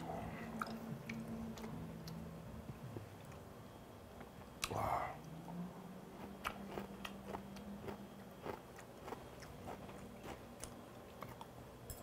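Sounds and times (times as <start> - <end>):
faint low hum: 0.0 - 12.0
man chewing wet mouth clicks: 0.6 - 2.2, 6.2 - 11.5.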